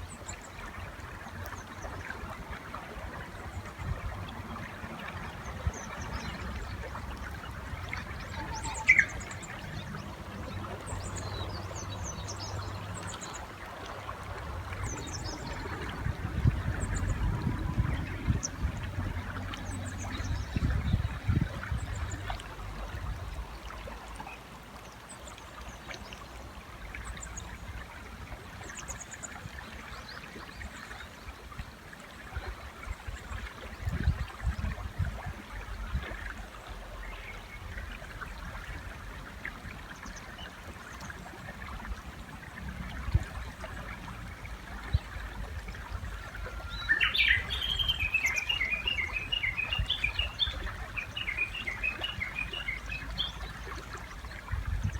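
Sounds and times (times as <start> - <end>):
river water flowing: 0.0 - 54.9
bird singing loudly: 8.4 - 9.2.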